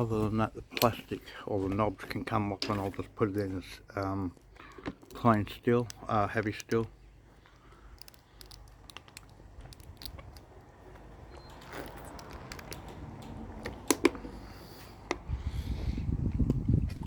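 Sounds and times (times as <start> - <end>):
scrap metal clicks and knocks: 7.5 - 14.4.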